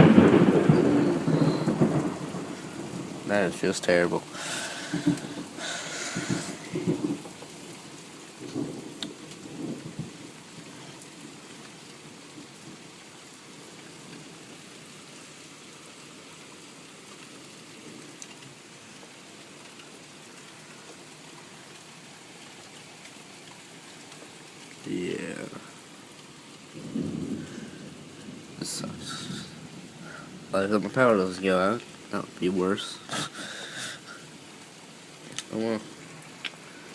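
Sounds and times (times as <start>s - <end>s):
thunder rumbling: 0.0s - 7.6s, 8.4s - 10.8s, 26.7s - 34.2s
steady rain falling: 0.0s - 36.9s.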